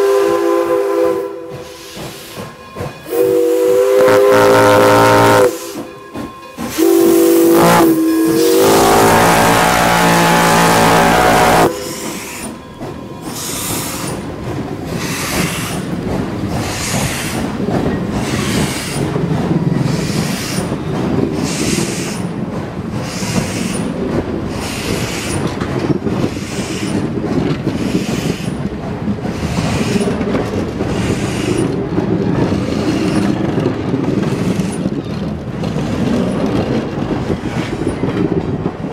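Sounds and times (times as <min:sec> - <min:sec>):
steam locomotive whistle: 0:00.0 - 0:02.0, 0:03.0 - 0:05.9, 0:06.7 - 0:12.6.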